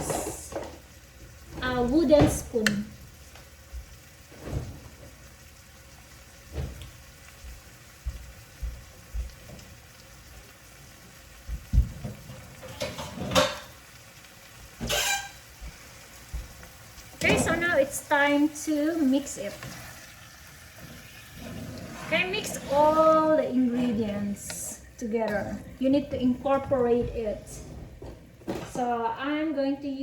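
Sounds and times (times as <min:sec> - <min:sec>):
faint sizzle: 0:00.0 - 0:30.0
wooden spoon scraping a pan: 0:14.8 - 0:15.9, 0:20.7 - 0:28.9.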